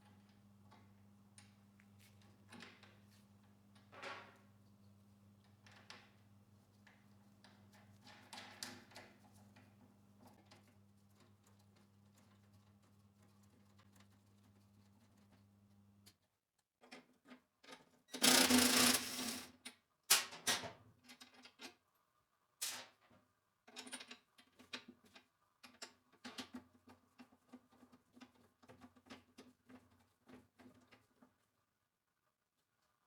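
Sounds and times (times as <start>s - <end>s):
loud rustling or rattling burst: 18.2s - 19.5s.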